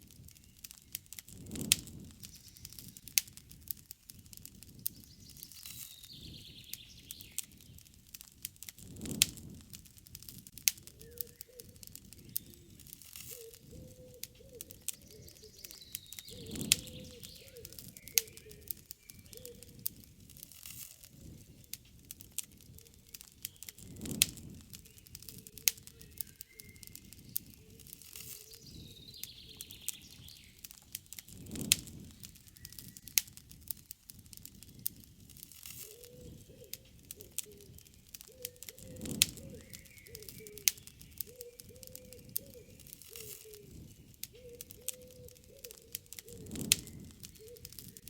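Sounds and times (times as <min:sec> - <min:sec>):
campfire crackling: 0:00.0 - 0:48.0
birds calling: 0:10.8 - 0:20.1, 0:22.5 - 0:33.1, 0:35.8 - 0:48.0.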